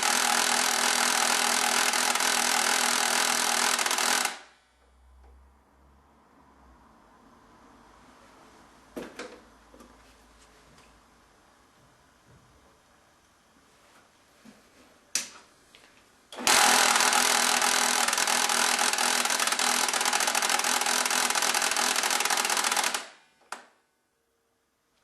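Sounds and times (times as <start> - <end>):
printer rapid mechanical rattle: 0.0 - 4.4, 16.4 - 23.2.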